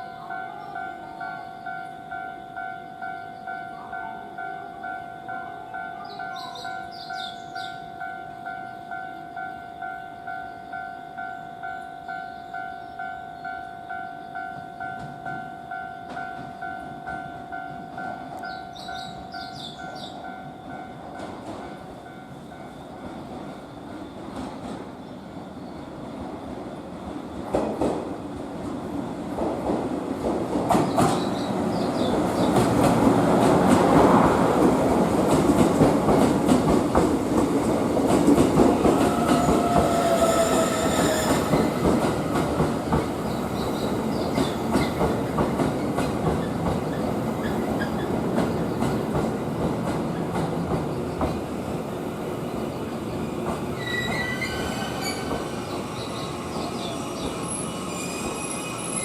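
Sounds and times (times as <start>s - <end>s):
train wheels clacking over joints: 29.4s - 51.4s
wheel and brake squeals: 53.8s - 59.0s.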